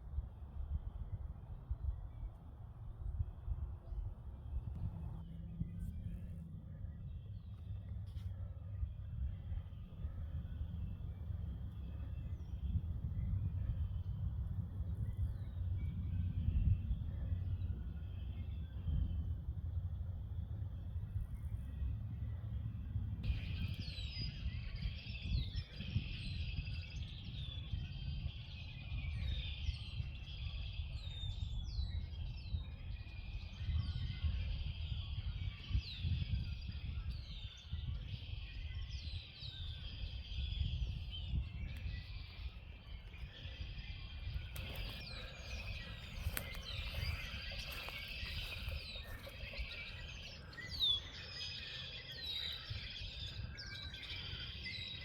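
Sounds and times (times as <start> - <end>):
low rumble: 1.6 - 26.0, 40.7 - 53.6
small birds chirping: 4.4 - 55.0.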